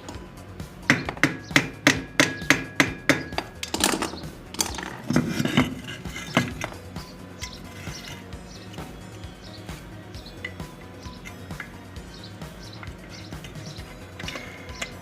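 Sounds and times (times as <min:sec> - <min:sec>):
sharp knocks on metal: 0:00.8 - 0:06.8
scraping and rubbing: 0:03.4 - 0:15.0.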